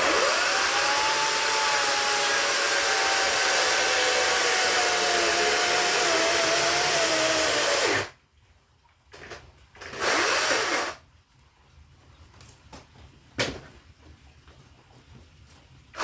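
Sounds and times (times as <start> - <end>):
chainsaw cutting firewood: 0.0 - 8.2, 9.8 - 11.0.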